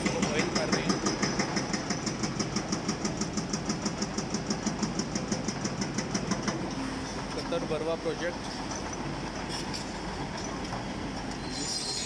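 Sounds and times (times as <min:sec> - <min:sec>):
hydraulic breaker hammering stone: 0:00.0 - 0:06.7.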